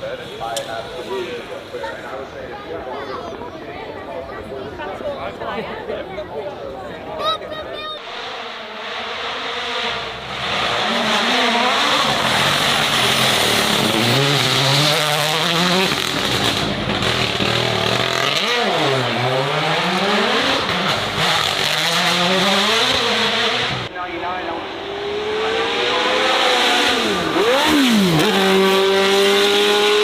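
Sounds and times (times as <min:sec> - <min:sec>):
racing car engine accelerating: 0:08.0 - 0:30.0.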